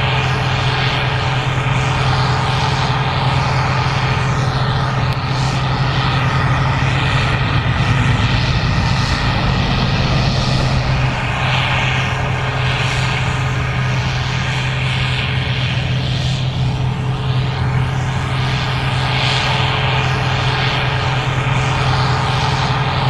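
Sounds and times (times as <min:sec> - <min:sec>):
combine engine drone: 0:00.0 - 0:23.0.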